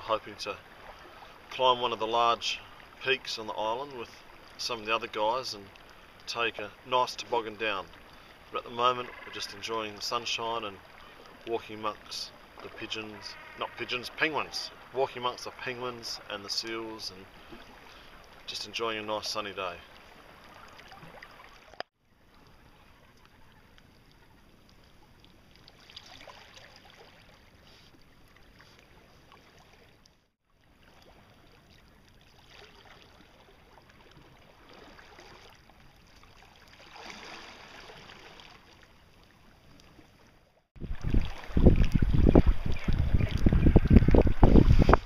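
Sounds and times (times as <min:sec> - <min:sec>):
wind buffeting microphone: 0:40.8 - 0:45.0.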